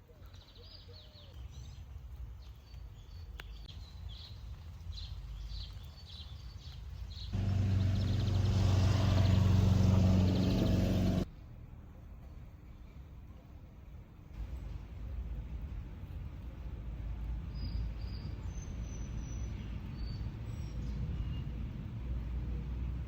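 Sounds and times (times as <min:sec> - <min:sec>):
small birds chirping: 0:00.2 - 0:11.3
loud engine-like hum: 0:07.4 - 0:11.3.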